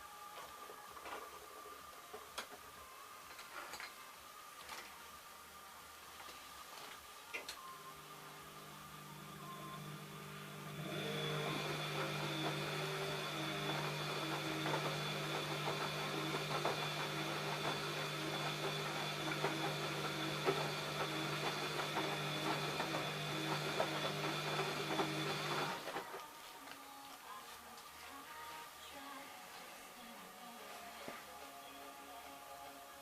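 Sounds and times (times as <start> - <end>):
washing machine mechanical running: 7.9 - 26.0
washing machine hum: 7.9 - 26.1.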